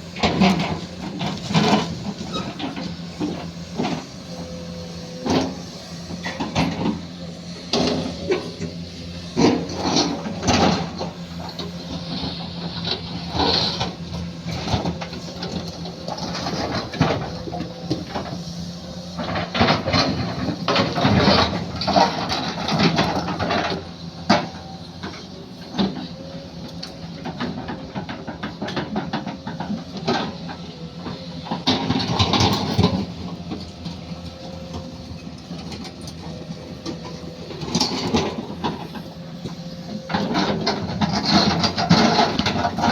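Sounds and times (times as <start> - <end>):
excavator engine running: 0.0 - 42.9
scraping of digging: 31.5 - 42.9.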